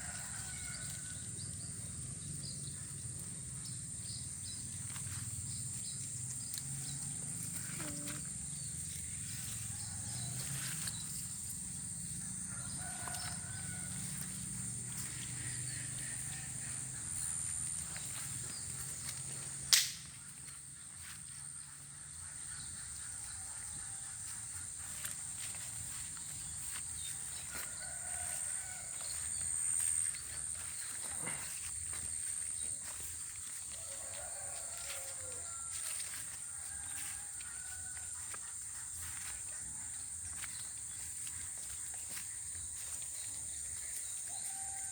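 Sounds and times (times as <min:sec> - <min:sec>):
distant rooster crow: 0:00.0 - 0:01.7, 0:09.4 - 0:11.1, 0:11.9 - 0:17.4, 0:25.6 - 0:31.6, 0:32.6 - 0:39.4, 0:44.0 - 0:44.9
high-pitched insect drone: 0:00.0 - 0:19.4.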